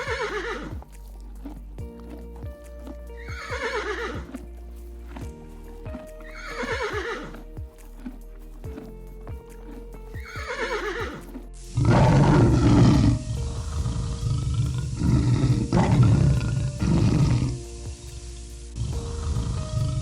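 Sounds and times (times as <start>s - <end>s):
horse whinnying: 0.0s - 0.8s, 3.2s - 4.4s, 6.2s - 7.4s, 10.2s - 17.6s
background music: 0.0s - 20.0s
big cat roaring: 11.8s - 17.7s, 19.1s - 20.0s.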